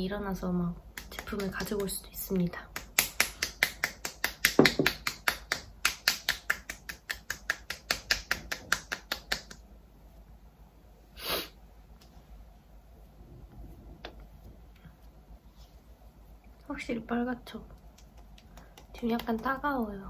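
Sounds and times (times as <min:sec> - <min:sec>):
hands patting face: 0:00.9 - 0:09.7, 0:17.7 - 0:19.7.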